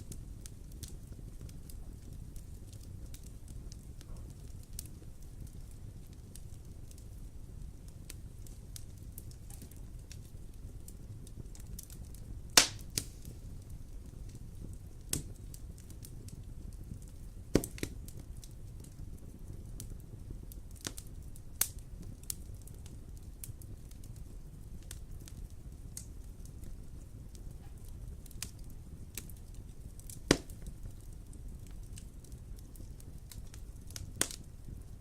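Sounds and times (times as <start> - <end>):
sharp pops of fire: 0.0 - 35.0
wood fire crackling: 0.0 - 35.0.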